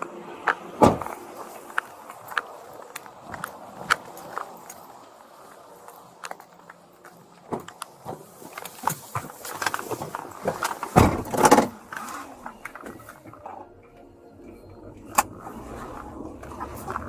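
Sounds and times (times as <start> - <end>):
clothing and gear rustling: 0.0 - 13.7
heavy thump: 0.8 - 1.2, 10.5 - 11.8.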